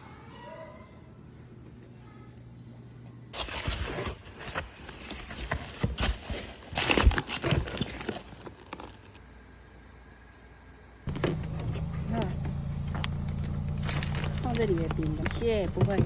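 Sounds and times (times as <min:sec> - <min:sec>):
rustling: 0:11.1 - 0:16.0.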